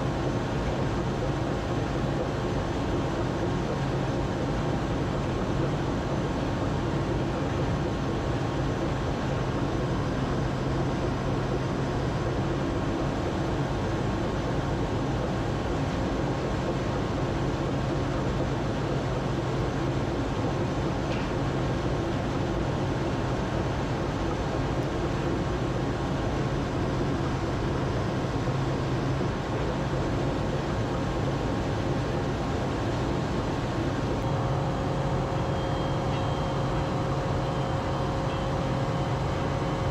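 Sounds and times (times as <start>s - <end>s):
engine drone: 34.2s - 39.9s.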